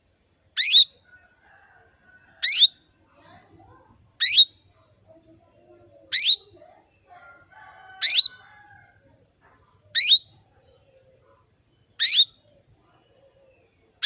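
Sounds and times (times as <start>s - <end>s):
canary rising call: 8.0s - 8.4s.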